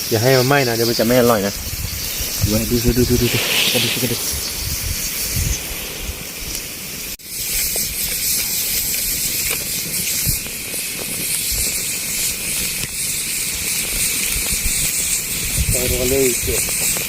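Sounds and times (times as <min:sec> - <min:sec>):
heavy rain hissing: 0:00.0 - 0:08.7.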